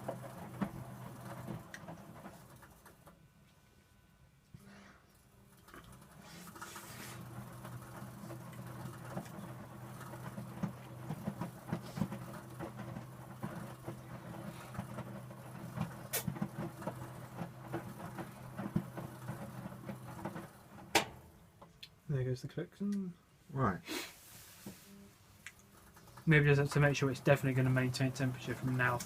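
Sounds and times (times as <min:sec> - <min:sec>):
washing machine motor hum: 0:00.0 - 0:21.7, 0:24.6 - 0:29.0
wet laundry sloshing and knocking: 0:06.3 - 0:21.1.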